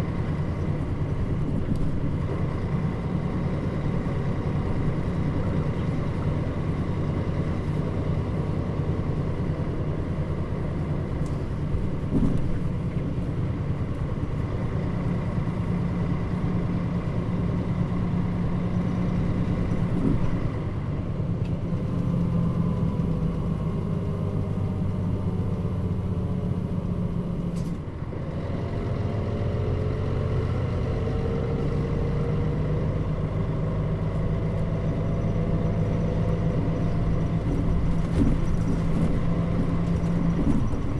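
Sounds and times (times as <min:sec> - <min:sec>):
bus diesel engine droning: 0:00.0 - 0:40.9.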